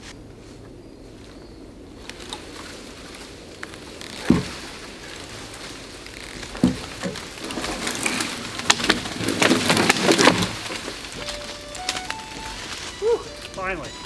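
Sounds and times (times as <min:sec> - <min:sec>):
branches cracking and snapping: 0:02.0 - 0:14.0
dull thumps: 0:04.0 - 0:14.0.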